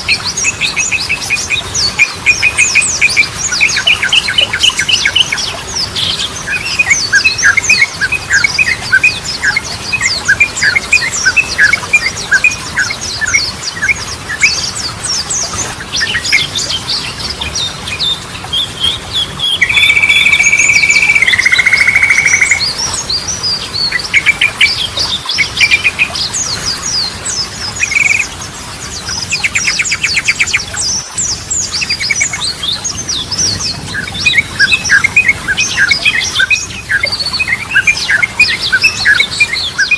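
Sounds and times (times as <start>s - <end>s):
bird chattering chirps: 19.6s - 22.7s, 27.8s - 28.3s.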